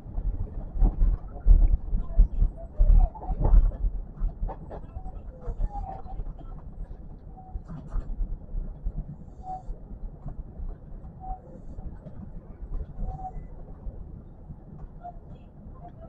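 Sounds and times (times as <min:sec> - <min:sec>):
electric train rumbling: 0:00.0 - 0:16.0.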